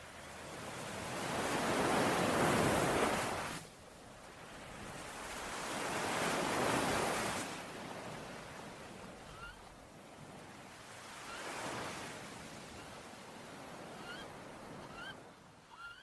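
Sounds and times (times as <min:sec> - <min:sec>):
sea waves washing onto shore: 0:00.0 - 0:09.2
faint bird chirps: 0:13.9 - 0:16.0.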